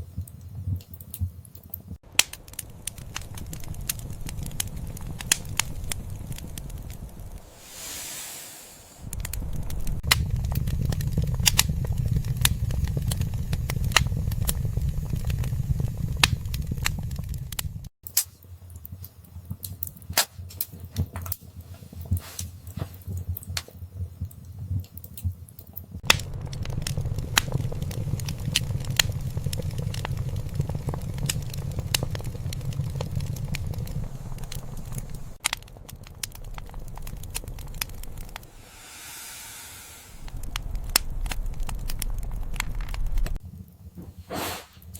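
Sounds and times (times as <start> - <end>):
low rumble of flames: 0.0 - 44.9
wood fire crackling: 0.0 - 44.9
sharp pops of burning wood: 0.9 - 8.0, 9.0 - 19.0, 26.0 - 38.4
short hiss: 7.5 - 9.1, 38.5 - 40.3, 44.2 - 44.8.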